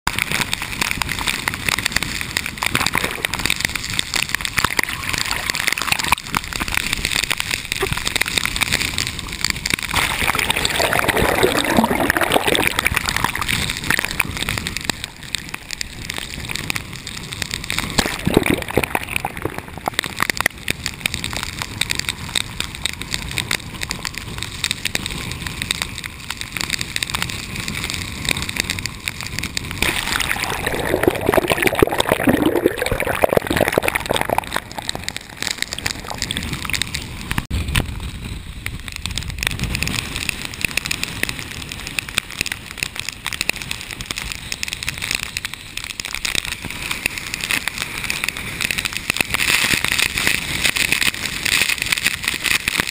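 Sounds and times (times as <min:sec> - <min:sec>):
rain drops hitting camera housing: 0:00.0 - 0:52.9
water gurgling and sloshing: 0:01.6 - 0:08.2, 0:09.6 - 0:14.6, 0:17.7 - 0:20.4, 0:29.8 - 0:37.5.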